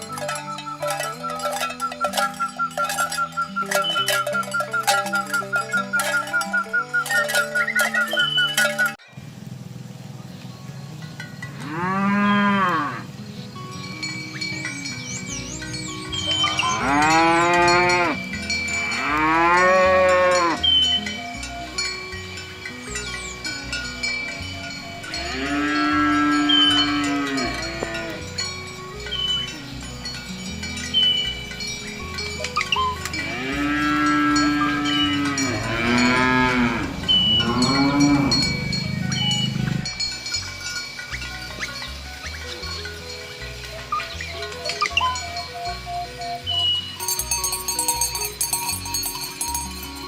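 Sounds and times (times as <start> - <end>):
high bell-like tones: 0.0 - 9.1, 13.7 - 50.0
cow mooing: 11.6 - 13.1, 16.3 - 18.2, 18.8 - 20.7, 24.9 - 28.2, 33.1 - 39.9.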